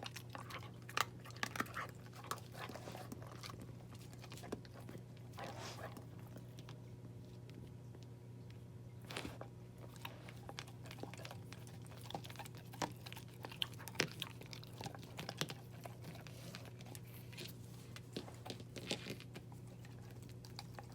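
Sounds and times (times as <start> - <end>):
puppy crunching food: 0.0 - 8.2, 9.0 - 20.9.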